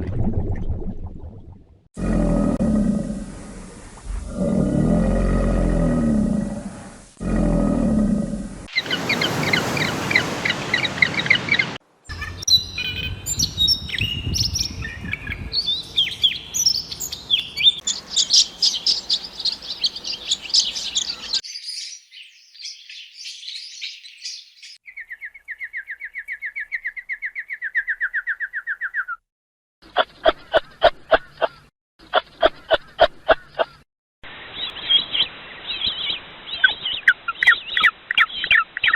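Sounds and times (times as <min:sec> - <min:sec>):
bird chirps and trills: 0:08.7 - 0:29.2.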